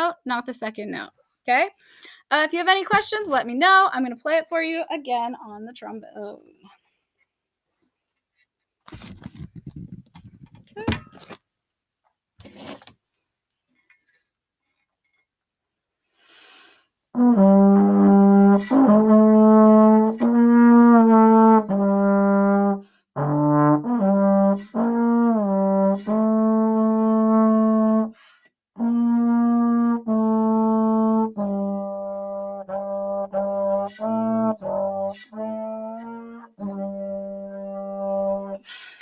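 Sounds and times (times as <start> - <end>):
trombone playing slow melody: 17.1 - 28.2, 28.8 - 38.8.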